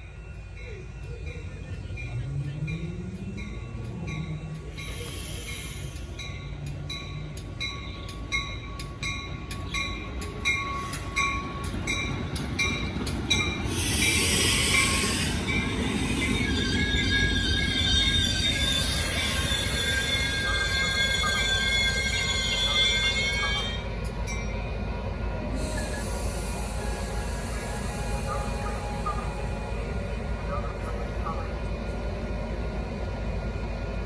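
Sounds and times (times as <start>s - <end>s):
train rumbling past: 0.0s - 34.0s
high wheel squeal: 1.2s - 8.1s, 13.5s - 23.9s, 25.6s - 31.6s
loud train hiss: 4.6s - 6.9s, 10.2s - 23.8s, 25.5s - 32.9s.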